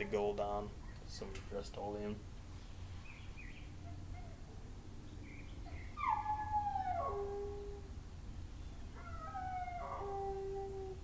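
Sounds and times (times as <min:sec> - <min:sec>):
dog howling: 0:05.7 - 0:07.9, 0:08.9 - 0:11.0.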